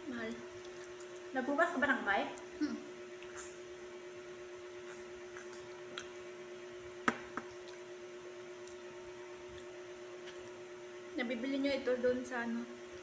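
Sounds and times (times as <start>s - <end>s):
steady faint hum: 0.0s - 13.0s
bread bun chewing: 0.4s - 1.3s, 4.6s - 10.6s
soft mouth clicks: 2.5s - 3.6s.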